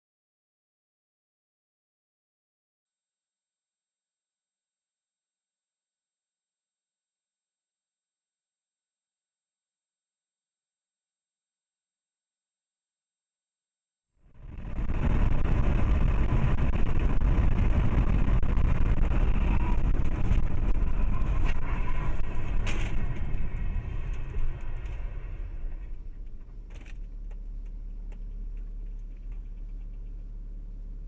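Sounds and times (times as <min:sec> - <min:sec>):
car road and engine noise: 0:14.3 - 0:31.0.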